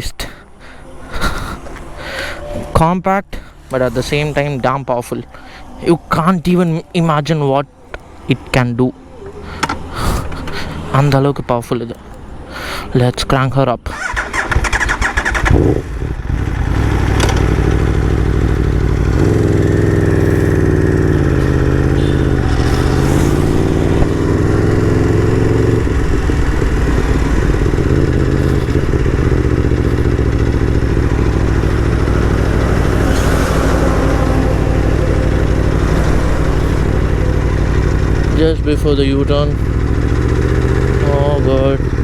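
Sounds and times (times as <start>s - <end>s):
motorcycle engine idling: 14.0s - 42.0s.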